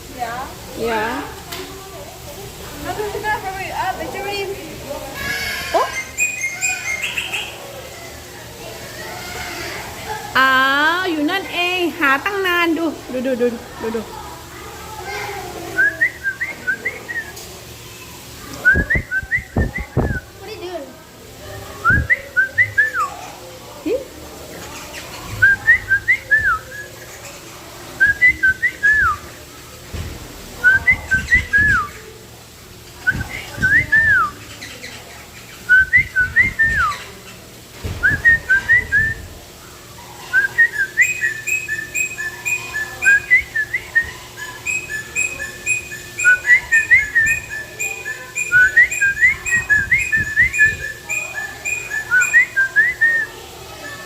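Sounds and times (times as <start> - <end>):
birds whistling: 5.2 - 8.2, 15.8 - 17.4, 18.6 - 20.3, 21.8 - 23.3, 24.6 - 29.3, 30.6 - 32.1, 33.0 - 37.4, 38.0 - 39.3, 40.2 - 54.0
higher-pitched bird whistles: 5.8 - 7.6, 30.7 - 32.0, 35.6 - 37.1, 38.0 - 39.2, 40.3 - 54.0.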